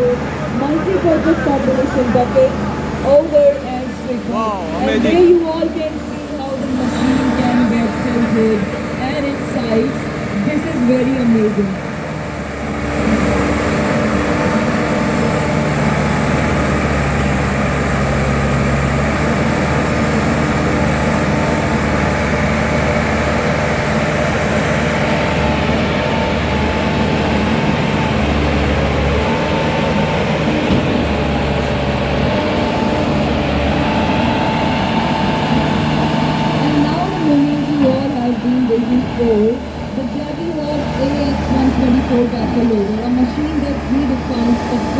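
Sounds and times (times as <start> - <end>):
high whining tone: 0.0 - 18.7
diesel engine running under load: 0.0 - 44.9.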